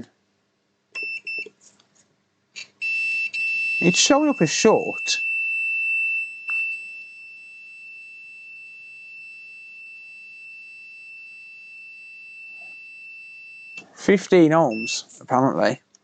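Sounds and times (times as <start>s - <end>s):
high-pitched continuity beep: 2.6s - 7.1s, 11.2s - 13.8s, 14.7s - 15.0s.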